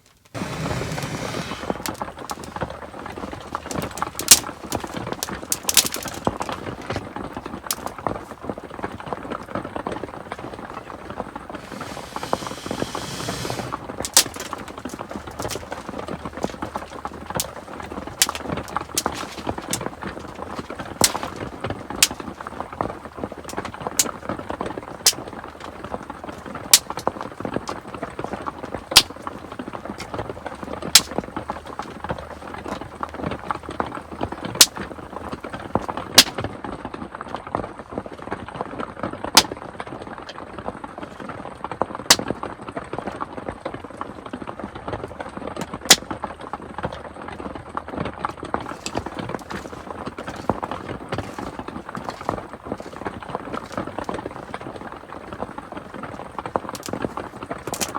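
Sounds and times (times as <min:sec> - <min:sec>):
wood fire crackling: 0:00.0 - 0:36.5, 0:48.5 - 0:57.9.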